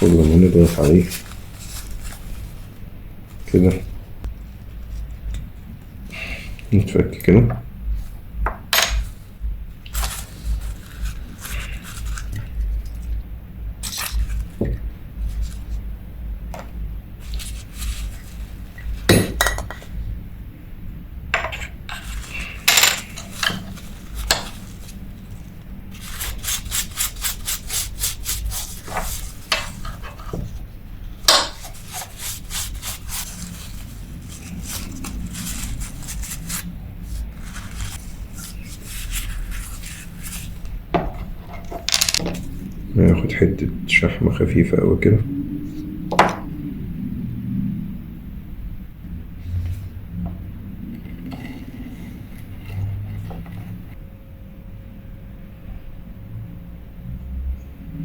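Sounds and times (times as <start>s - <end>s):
small metal parts clinking: 21.9s - 23.6s, 41.6s - 42.5s.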